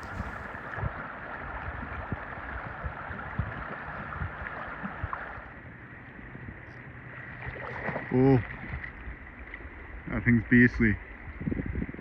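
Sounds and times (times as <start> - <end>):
river current rushing: 0.0 - 0.8.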